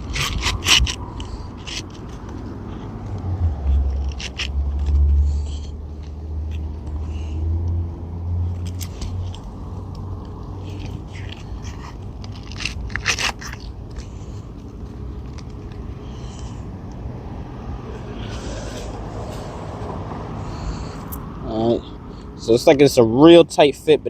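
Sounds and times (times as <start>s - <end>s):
shingle scraping and crunching: 0.0s - 7.4s, 8.5s - 16.6s.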